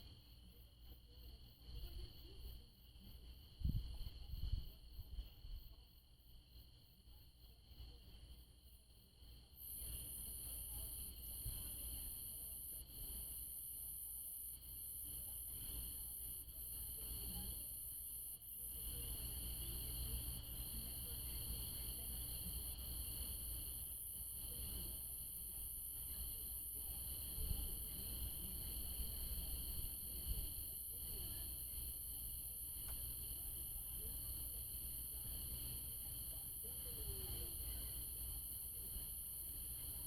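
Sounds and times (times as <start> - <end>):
night insects trilling: 9.2 - 40.0.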